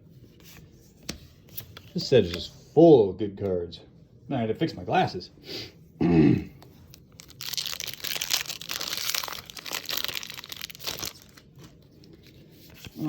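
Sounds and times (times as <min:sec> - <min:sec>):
foil wrapper crinkling and tearing: 0:06.9 - 0:13.0.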